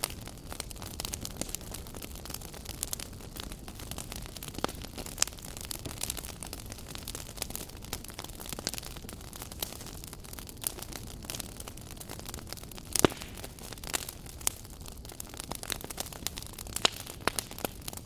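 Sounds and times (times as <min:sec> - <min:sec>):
sharp pops of fire: 0:00.0 - 0:08.8, 0:12.0 - 0:14.7, 0:15.4 - 0:18.0
fireplace fire crackling: 0:00.0 - 0:18.0.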